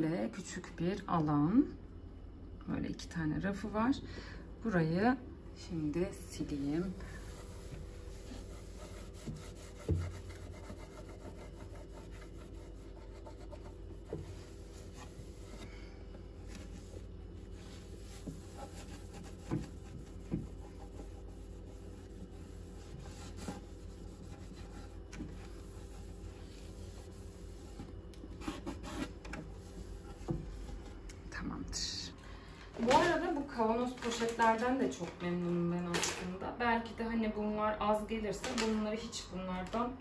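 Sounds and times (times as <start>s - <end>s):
cloth rubbing shelves: 6.2s - 31.0s.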